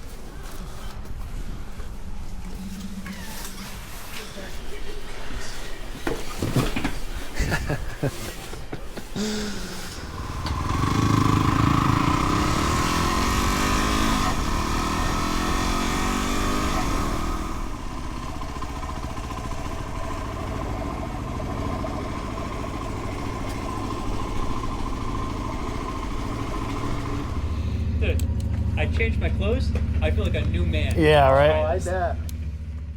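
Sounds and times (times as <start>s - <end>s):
motorcycle engine running: 9.3s - 32.9s.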